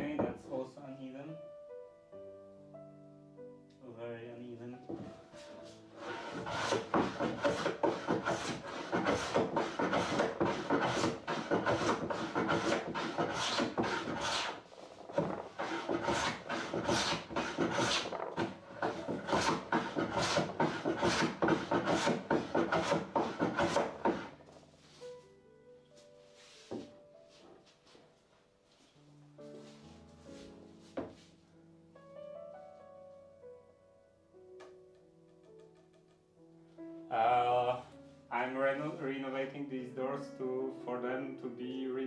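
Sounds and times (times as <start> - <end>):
hand tool rubbing on wood: 5.4 - 25.1.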